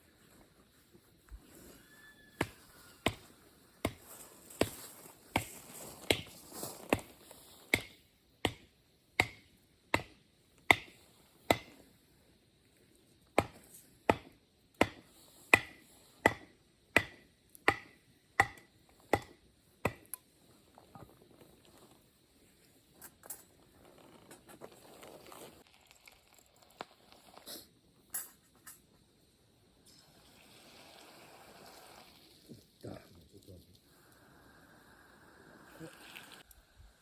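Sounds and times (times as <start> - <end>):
chopping strikes: 2.4 - 11.8, 13.4 - 20.2.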